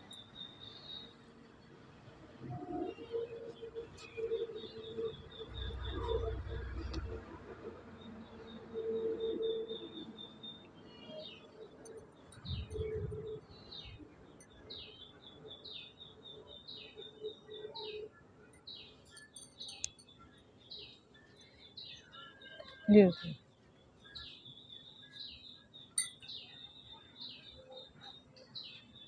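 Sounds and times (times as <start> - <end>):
bird chirping: 8.3 - 29.0.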